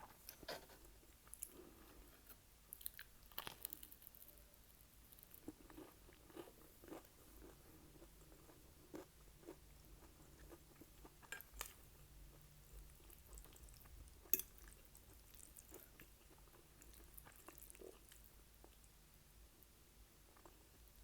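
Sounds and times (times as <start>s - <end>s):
chewing and wet mouth sounds: 2.7s - 18.9s.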